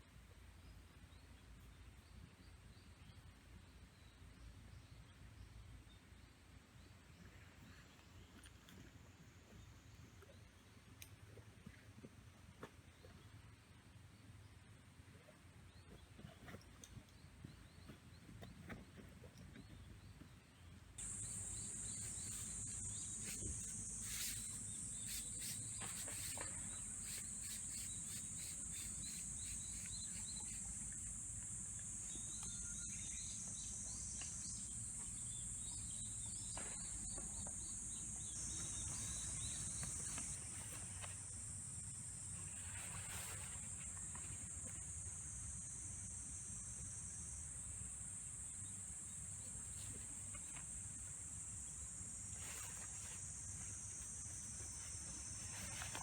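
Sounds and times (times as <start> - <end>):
insects shrilling: 21.0 - 41.2.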